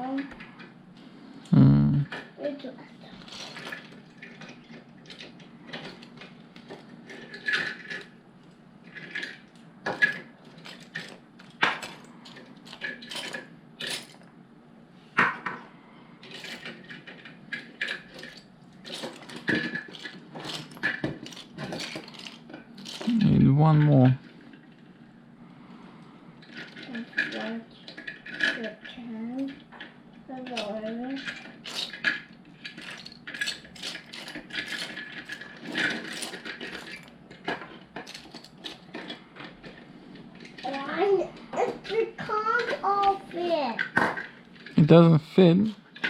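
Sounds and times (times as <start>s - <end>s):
plastic bricks clicking and clattering: 8.9s - 14.2s, 16.2s - 23.2s, 30.4s - 39.8s
plastic toy bricks clicking: 30.4s - 39.2s.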